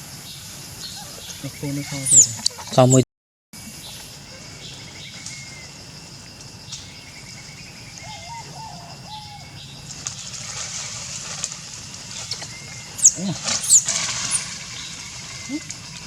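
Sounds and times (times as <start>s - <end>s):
high chirping calls: 0.0s - 3.0s, 6.7s - 9.9s, 12.3s - 15.9s
outdoor hiss: 0.0s - 3.0s, 3.6s - 16.0s.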